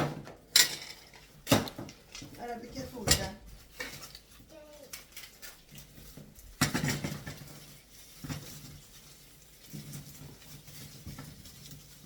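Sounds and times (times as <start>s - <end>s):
kitchen items knocking: 0.0s - 4.1s, 6.1s - 8.7s.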